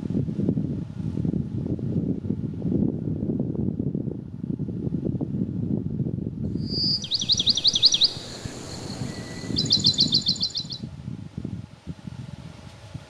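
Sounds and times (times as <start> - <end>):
wind blowing through woodland: 6.4 - 13.0
small bird singing: 6.6 - 10.8.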